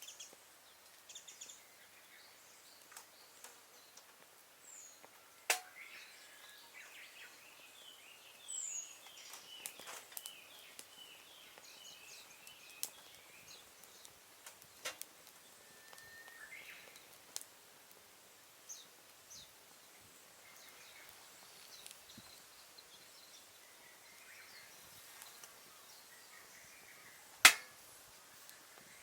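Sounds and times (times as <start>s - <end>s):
birds chirping faintly: 0.0s - 29.0s
wood fire crackling: 0.0s - 29.0s
sharp loud pop from fire: 5.5s - 5.8s, 27.4s - 27.8s.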